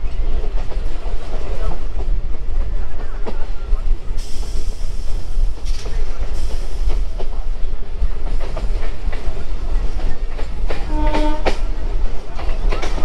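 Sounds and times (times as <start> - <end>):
train rumbling: 0.0 - 13.0
wheels clacking over rail joints: 5.1 - 13.0.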